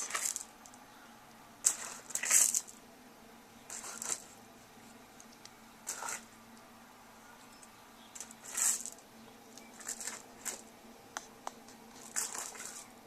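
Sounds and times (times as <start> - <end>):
faint steady hum: 0.0 - 13.0
rustling handling noises: 3.7 - 6.3, 7.6 - 13.0.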